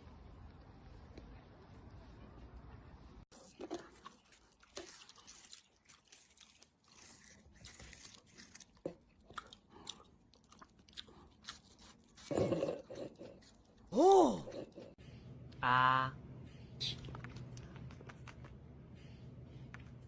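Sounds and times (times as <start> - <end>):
crunching and chewing: 3.3 - 13.9, 17.0 - 18.6.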